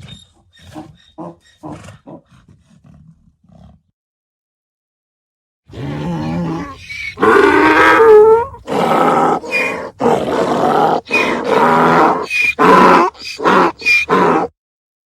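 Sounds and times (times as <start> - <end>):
donkey braying: 5.7 - 14.5.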